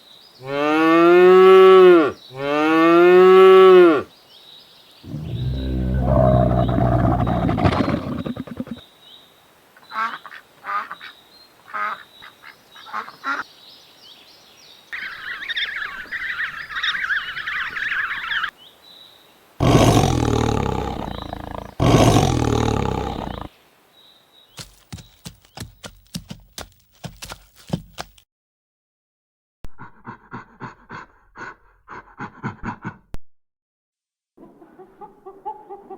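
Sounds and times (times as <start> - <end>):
long low bellows: 5.1 - 8.7
cow mooing: 5.1 - 8.8, 19.6 - 23.5
dense animal chatter: 5.1 - 8.8, 19.6 - 23.5
long low animal call: 5.1 - 8.8, 19.6 - 23.5.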